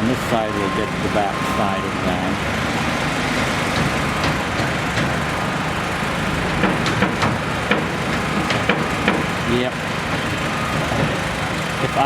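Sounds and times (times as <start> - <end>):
heavy diesel engine running: 0.0 - 12.0
sharp knocks: 2.6 - 11.6.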